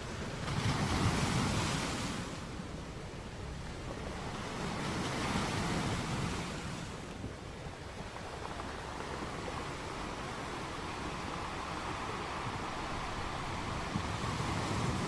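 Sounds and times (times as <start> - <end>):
ocean waves breaking: 3.6 - 15.0.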